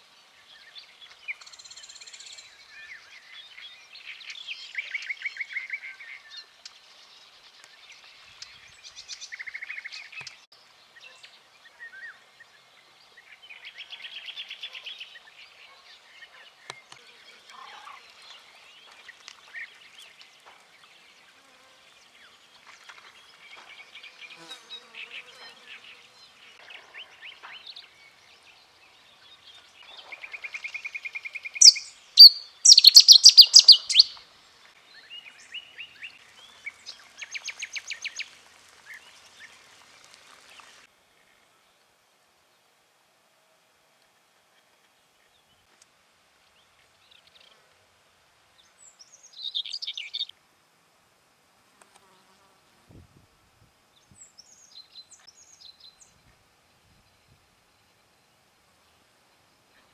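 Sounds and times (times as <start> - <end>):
small birds singing: 0.0 - 42.0, 48.5 - 50.3, 53.8 - 59.9
bird trill: 31.4 - 34.2.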